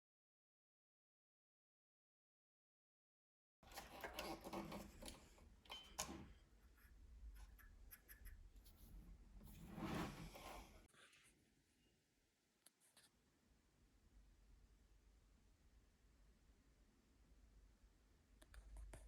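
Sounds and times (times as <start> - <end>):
soft rubbing and scraping: 6.6 - 11.4.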